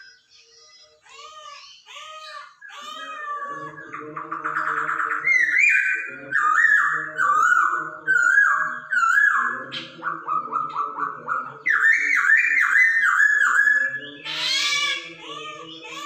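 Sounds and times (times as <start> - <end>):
bird singing whistled song: 4.6 - 11.0, 11.7 - 15.0.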